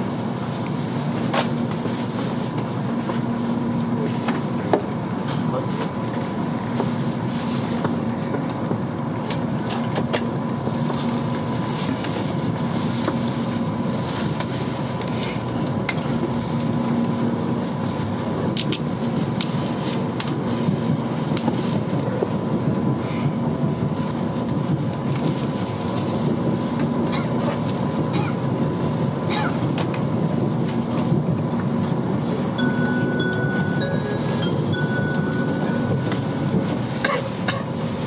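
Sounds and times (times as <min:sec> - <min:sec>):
train wheels rumbling on track: 0:00.0 - 0:38.0
faint hum: 0:32.6 - 0:37.0.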